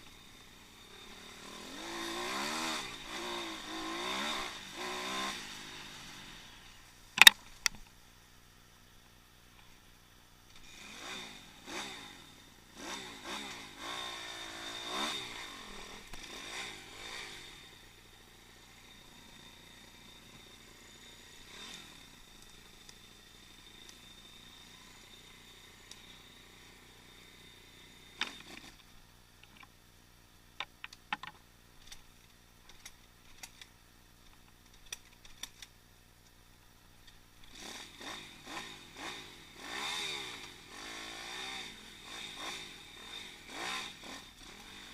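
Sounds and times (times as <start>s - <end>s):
pit bike engine revving: 0.0s - 6.8s, 10.6s - 28.8s, 37.4s - 44.9s
sharp knocks and clatter: 30.6s - 31.4s.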